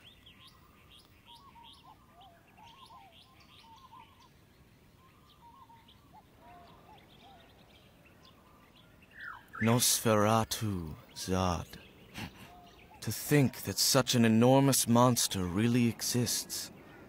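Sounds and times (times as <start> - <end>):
faint birdsong: 0.0 - 17.0.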